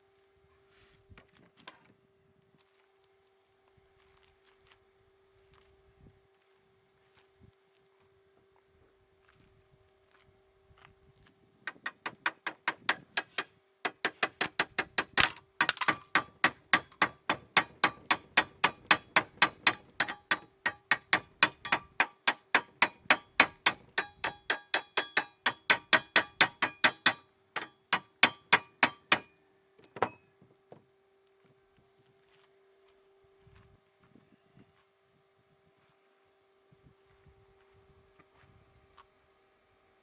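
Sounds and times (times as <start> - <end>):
hammer blows on wood: 11.7 - 29.4.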